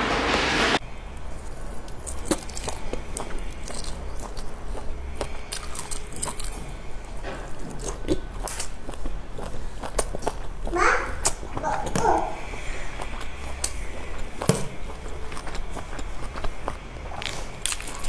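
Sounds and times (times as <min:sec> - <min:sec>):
chewing sausage: 0:01.1 - 0:18.0.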